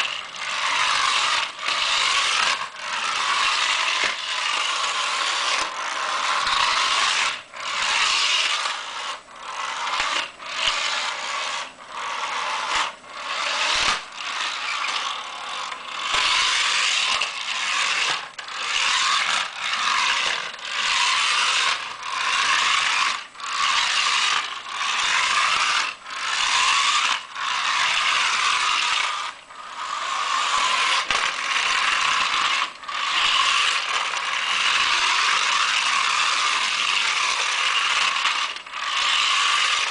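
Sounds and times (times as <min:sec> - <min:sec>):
toy car gears rattling: 0:00.0 - 0:39.9.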